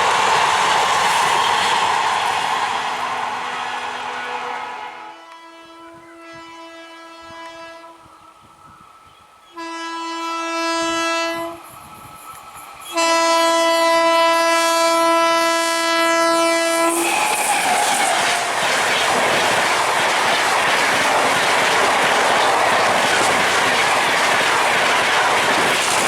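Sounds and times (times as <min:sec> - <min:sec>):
passing train rushing and rattling: 0:00.0 - 0:26.0
locomotive horn blasts: 0:03.4 - 0:08.4, 0:09.5 - 0:11.6, 0:12.9 - 0:17.1.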